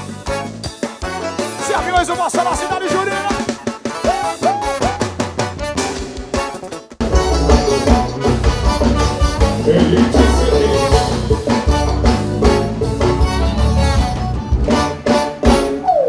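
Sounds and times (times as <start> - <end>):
live band playing instrumental: 0.0 - 16.0.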